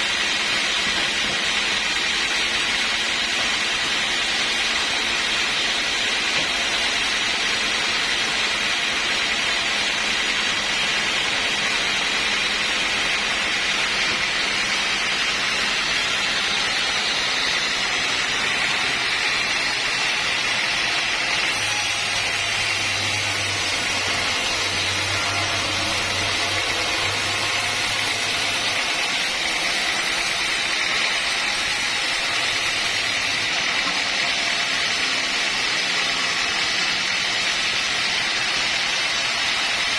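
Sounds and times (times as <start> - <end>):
sawmill machinery whirring: 0.0 - 39.9.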